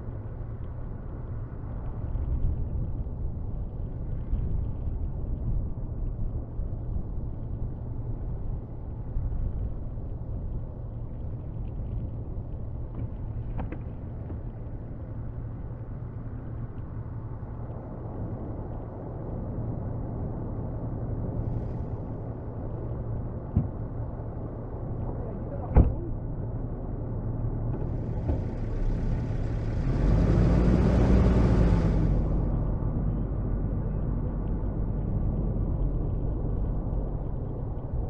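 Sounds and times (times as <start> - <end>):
truck engine rumbling: 21.5 - 38.0.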